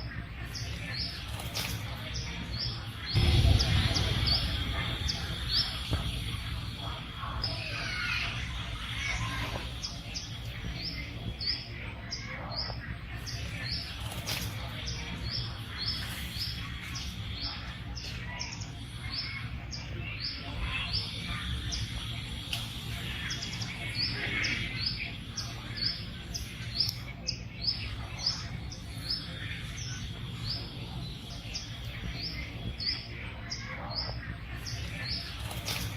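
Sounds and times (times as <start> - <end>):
steady low rumble: 2.8 - 7.8.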